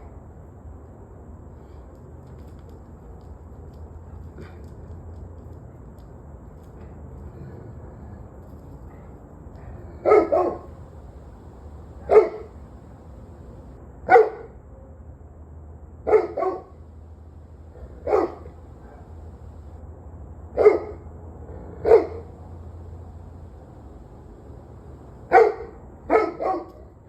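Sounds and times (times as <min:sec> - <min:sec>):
faint steady hum: 0:08.0 - 0:13.8, 0:16.6 - 0:19.8, 0:22.2 - 0:25.4
dog barking: 0:10.0 - 0:10.9, 0:11.8 - 0:14.5, 0:16.1 - 0:16.8, 0:17.8 - 0:19.7, 0:20.6 - 0:21.0, 0:21.8 - 0:22.6, 0:25.2 - 0:26.9.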